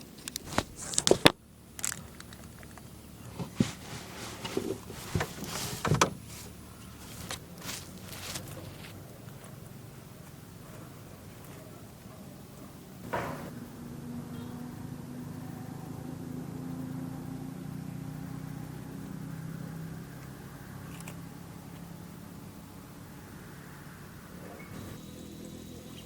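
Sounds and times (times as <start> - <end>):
low motor hum: 1.4 - 26.0
sharp knock: 13.1 - 13.5.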